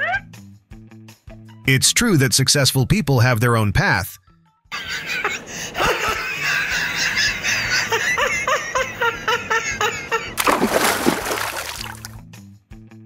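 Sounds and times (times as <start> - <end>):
person laughing: 4.7 - 12.0
loud splash into river: 10.4 - 12.2.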